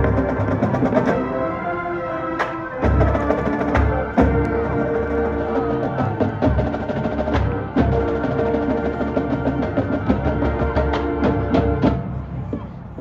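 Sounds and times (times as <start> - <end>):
marching band playing: 0.0 - 12.5
brass and winds holding chords: 0.0 - 13.0
drums: 0.0 - 13.0.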